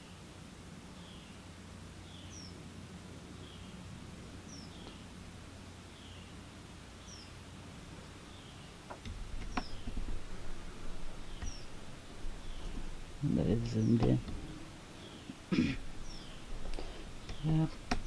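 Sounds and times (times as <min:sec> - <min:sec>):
steady low hum: 0:00.0 - 0:18.0
bird chirping: 0:01.0 - 0:01.4, 0:02.0 - 0:02.6, 0:03.3 - 0:05.2, 0:05.9 - 0:07.4, 0:08.0 - 0:18.0.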